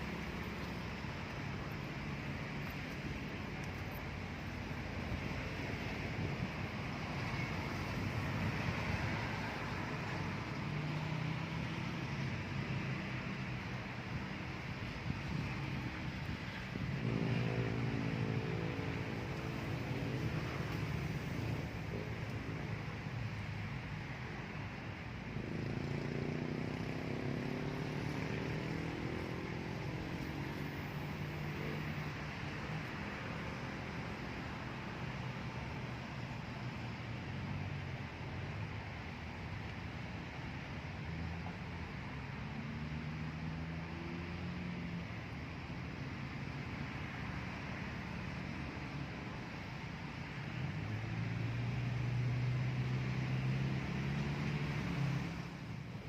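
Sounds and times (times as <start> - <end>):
constant hiss: 0.0 - 56.0
low engine rumble: 11.7 - 25.5
vehicle engine passing by: 14.6 - 23.6, 25.3 - 34.4, 50.3 - 56.0.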